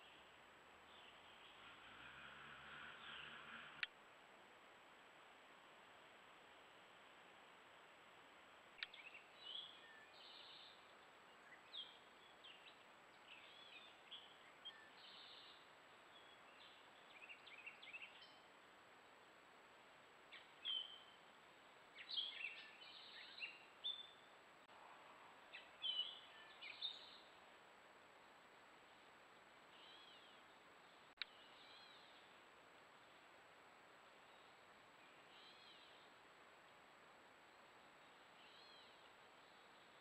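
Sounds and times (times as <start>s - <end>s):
faint steady hiss: 0.0s - 40.0s
birds chirping and singing: 25.5s - 27.3s.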